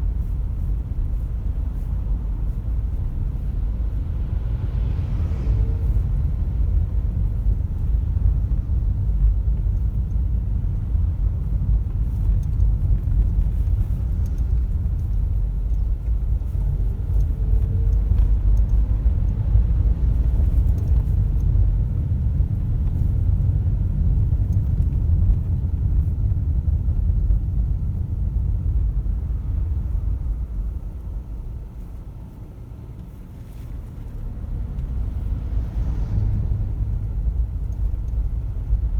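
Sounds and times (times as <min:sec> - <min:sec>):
car driving on road: 0:00.0 - 0:38.9.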